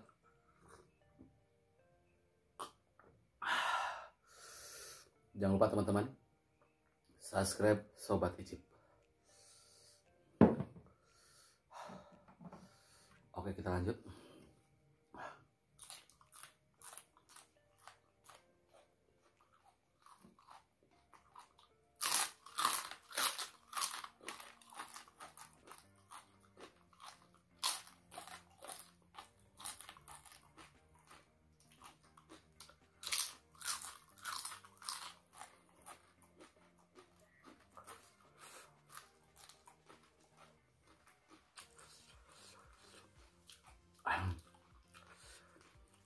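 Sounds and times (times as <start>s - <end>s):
crisp crunching and chewing: 15.8s - 46.0s.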